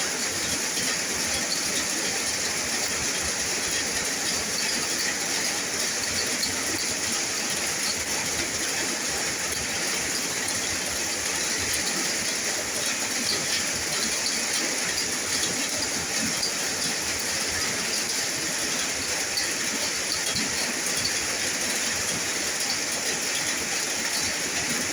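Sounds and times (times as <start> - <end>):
steady rain falling: 0.0 - 24.9.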